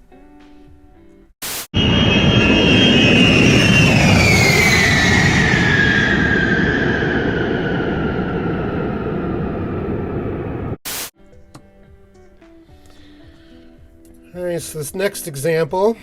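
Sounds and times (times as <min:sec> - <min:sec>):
bomber jet engines passing: 0:01.8 - 0:10.8.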